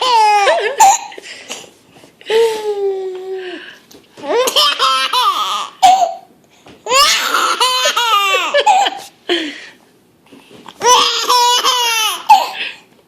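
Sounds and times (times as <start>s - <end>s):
baby giggling: 0.0s - 1.2s, 6.9s - 9.1s, 10.8s - 12.6s.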